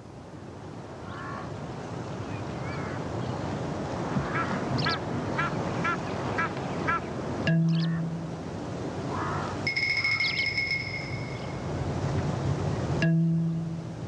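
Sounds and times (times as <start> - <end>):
outdoor hiss: 0.0 - 14.0
low steady hum: 4.4 - 14.0
bird calling short notes: 7.0 - 8.2.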